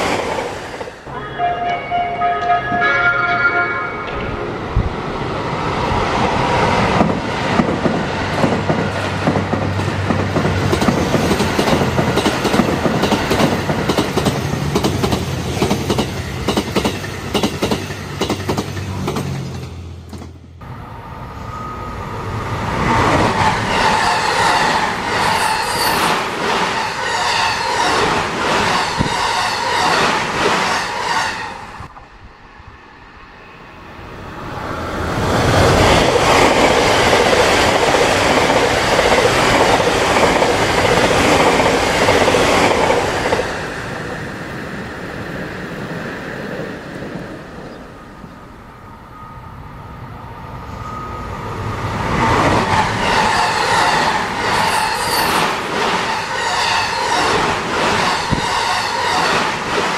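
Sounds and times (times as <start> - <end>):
train wheels clattering on rails: 4.0 - 20.4, 35.1 - 44.2, 51.2 - 59.9.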